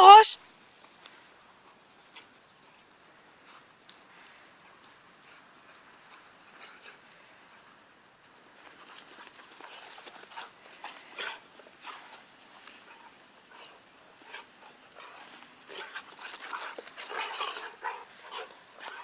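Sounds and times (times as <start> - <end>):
dog panting: 4.6 - 7.7, 8.7 - 19.0.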